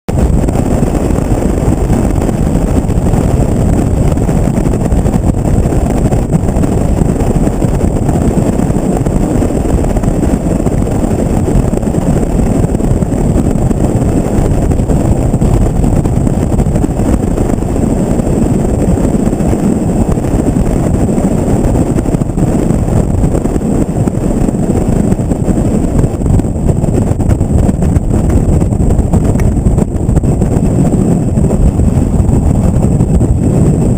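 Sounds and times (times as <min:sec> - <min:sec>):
wind rumble on microphone: 0:00.0 - 0:33.9.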